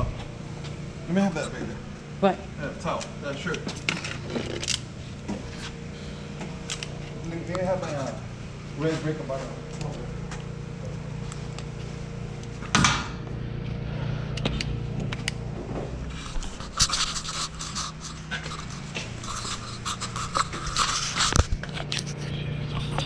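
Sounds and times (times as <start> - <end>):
steady low hum: 0.0 - 23.0
metal parts rattling and scraping: 16.1 - 23.0.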